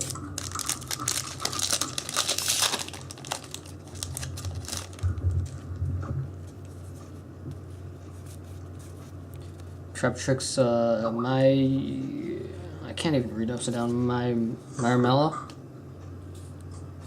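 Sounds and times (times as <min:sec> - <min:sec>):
foil wrapper crinkling and tearing: 0:00.0 - 0:05.6
low steady hum: 0:00.0 - 0:17.0.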